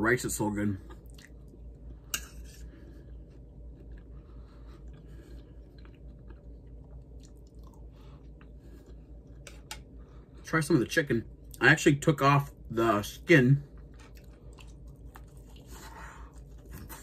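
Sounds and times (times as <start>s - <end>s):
steady low hum: 0.0s - 17.0s
person chewing: 0.8s - 10.0s, 13.7s - 17.0s.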